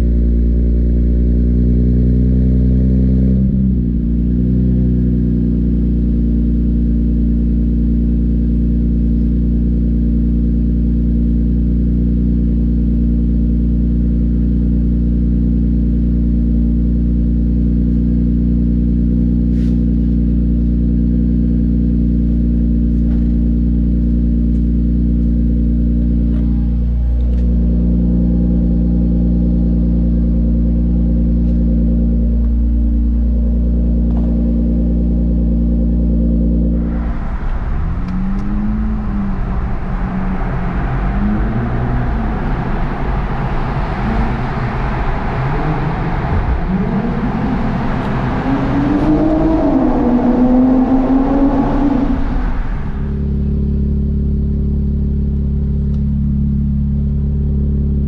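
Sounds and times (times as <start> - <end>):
car engine idling and revving: 0.0 - 58.0.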